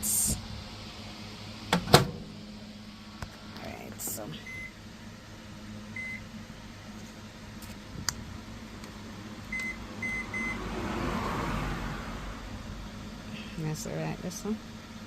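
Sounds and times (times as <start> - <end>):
microwave humming with fan: 0.0 - 15.0
microwave keypad beeping: 4.4 - 4.8, 6.0 - 6.2, 9.5 - 10.6.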